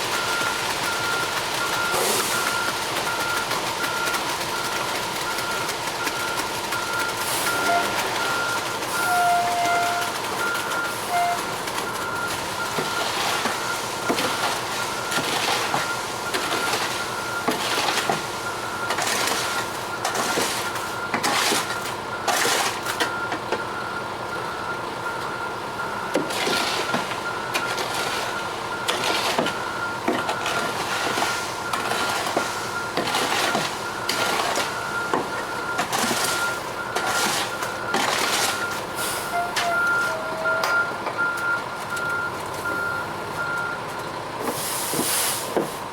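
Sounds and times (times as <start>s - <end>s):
truck engine running: 0.0s - 45.9s
backup alarm beeping: 5.3s - 14.3s, 29.7s - 43.8s.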